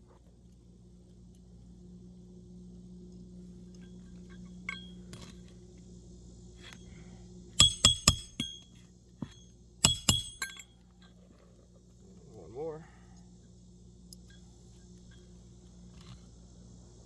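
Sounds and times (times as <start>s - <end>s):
hatchet striking roofing nails: 7.6s - 10.6s.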